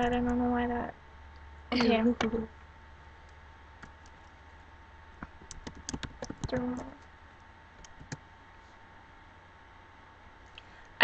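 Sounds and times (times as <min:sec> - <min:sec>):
keyboard key clicks: 0:05.4 - 0:06.6.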